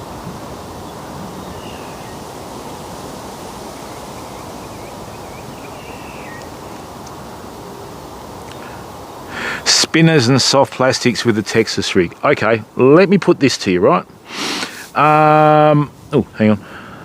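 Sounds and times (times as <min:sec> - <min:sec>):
steady rushing background noise: 0:00.0 - 0:16.6
faint high bird chirps: 0:00.8 - 0:02.3, 0:03.7 - 0:06.9.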